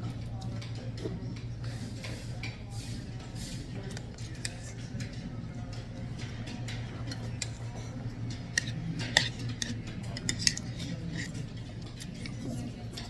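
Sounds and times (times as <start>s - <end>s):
steady low hum: 0.0s - 13.0s
utensils clinking against bowls: 0.0s - 13.0s.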